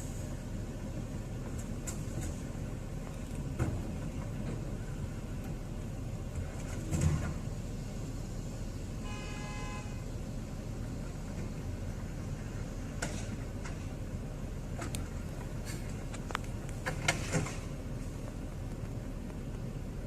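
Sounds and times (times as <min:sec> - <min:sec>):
road traffic noise: 0:00.0 - 0:20.0
car horn blast: 0:09.0 - 0:10.1.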